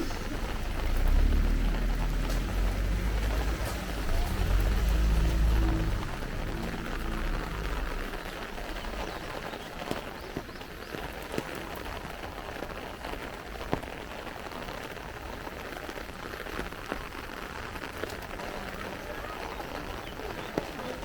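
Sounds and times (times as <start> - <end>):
low rumble: 0.0 - 9.3
rain pattering on an umbrella: 0.0 - 21.0.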